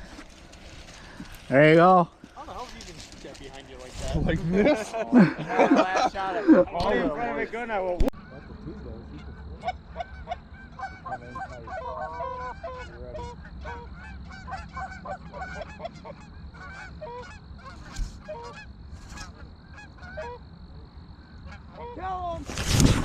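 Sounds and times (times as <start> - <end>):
geese honking: 5.6 - 22.1.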